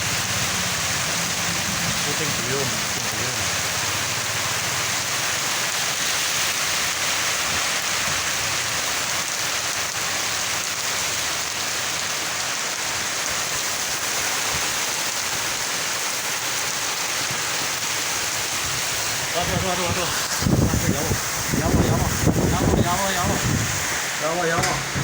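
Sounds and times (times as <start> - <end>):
heavy rain pouring: 0.0 - 25.0
wind storm: 18.5 - 25.0.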